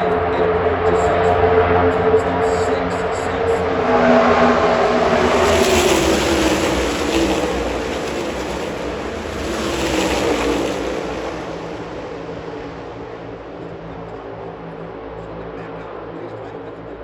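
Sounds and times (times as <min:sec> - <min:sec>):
race car engines passing: 0:00.0 - 0:16.9.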